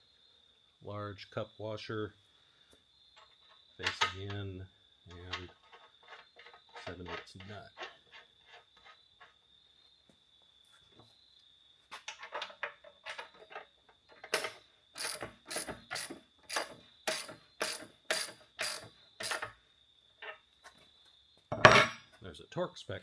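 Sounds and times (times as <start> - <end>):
ratchet wrench ratcheting: 14.2 - 19.5.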